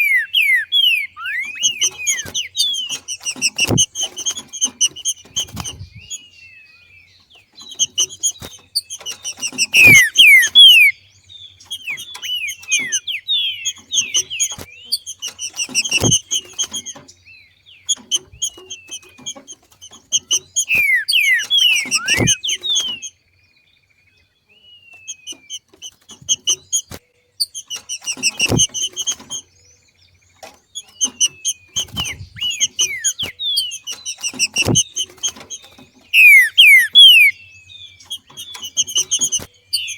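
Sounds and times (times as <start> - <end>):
falling whistled bird notes: 0.0 - 6.2, 7.7 - 11.0, 11.6 - 17.0, 20.1 - 23.1, 30.8 - 39.9
bird chattering calls: 0.0 - 6.3, 7.6 - 17.2, 17.8 - 23.2, 25.0 - 29.5, 30.4 - 39.9
sharp thumps: 1.4 - 6.1, 7.7 - 10.9, 13.8 - 17.1, 21.4 - 23.0, 27.7 - 29.4, 30.4 - 37.3.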